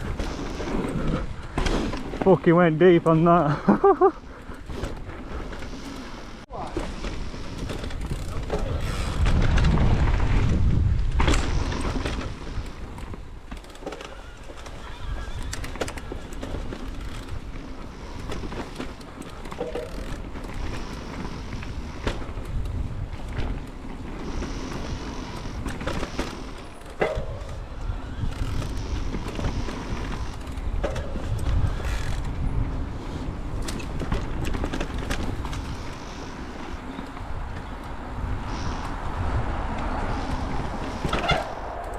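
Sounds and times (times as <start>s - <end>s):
bike clattering: 0.0s - 41.9s
wind buffeting microphone: 4.5s - 13.6s, 14.4s - 41.9s
tyre rumble over rough ground: 6.4s - 41.9s.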